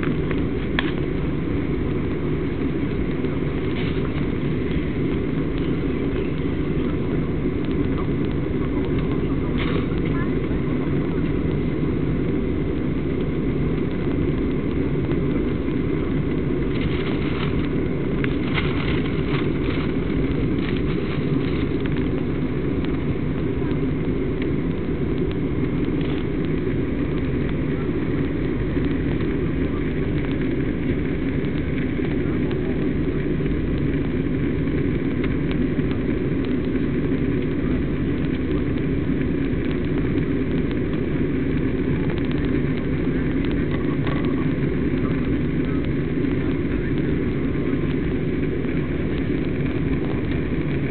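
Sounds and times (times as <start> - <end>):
aircraft cabin engine noise: 0.0 - 50.9
faint crackles: 0.0 - 50.9.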